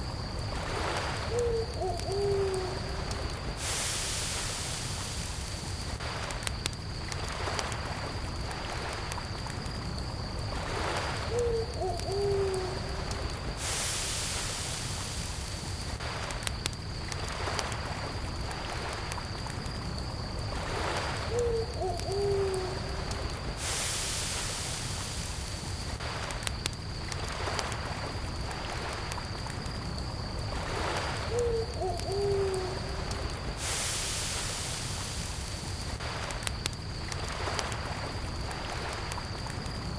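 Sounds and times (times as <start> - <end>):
campfire crackling: 0.0 - 39.9
cricket trill: 0.0 - 39.9
owl hooting: 1.3 - 2.9, 11.3 - 12.9, 21.3 - 22.9, 31.3 - 33.0
lake waves washing in: 2.4 - 6.4, 7.0 - 11.8, 12.4 - 16.4, 17.0 - 26.4, 27.0 - 31.8, 32.4 - 36.4.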